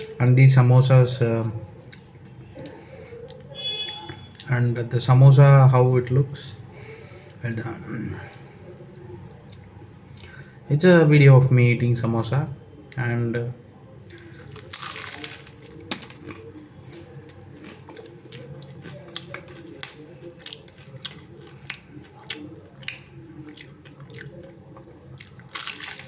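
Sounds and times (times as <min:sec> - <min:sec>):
person chewing crunchy pastry: 0:14.0 - 0:26.0.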